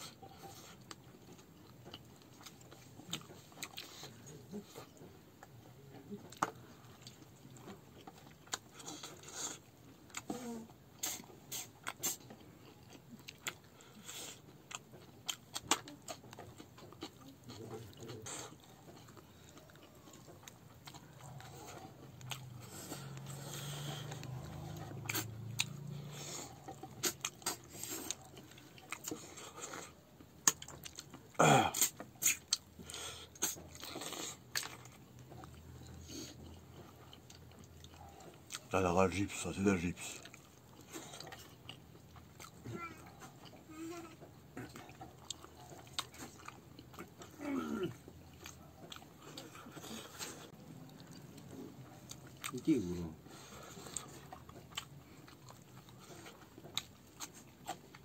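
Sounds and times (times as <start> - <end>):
person chewing and biting: 0.1 - 38.7, 40.2 - 52.7, 53.3 - 58.0
wet mouth clicks and smacks: 30.4 - 31.1.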